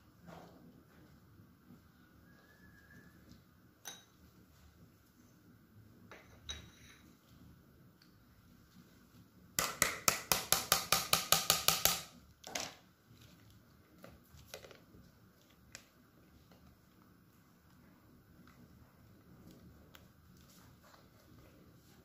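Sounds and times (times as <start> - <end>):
utensil knocking against a dish: 9.6 - 12.1.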